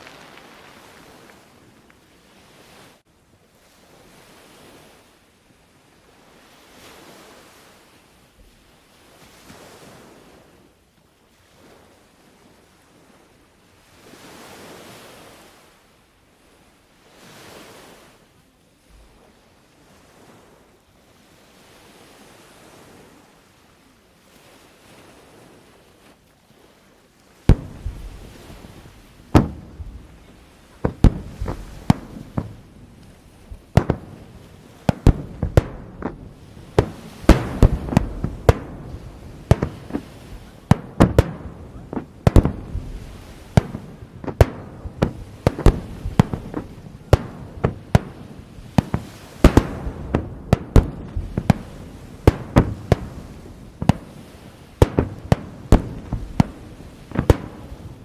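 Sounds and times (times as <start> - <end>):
booms echoing: 27.5 - 58.0
fireworks booming: 27.5 - 58.0.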